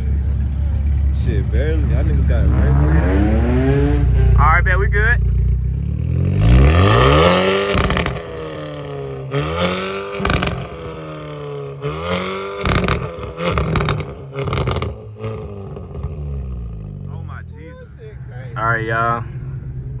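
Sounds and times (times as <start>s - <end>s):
car engine accelerating: 0.0s - 17.1s
exhaust crackling: 0.2s - 17.1s.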